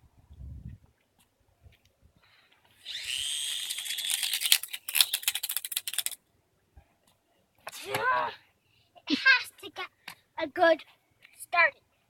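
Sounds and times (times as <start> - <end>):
toy whirring with rising whine: 2.8 - 6.2
fast clicks: 2.9 - 6.2.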